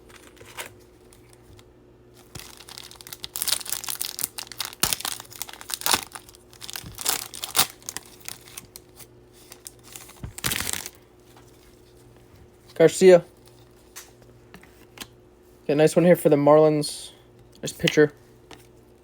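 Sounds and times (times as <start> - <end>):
foil wrapper crinkling: 0.0 - 1.6, 2.2 - 12.0.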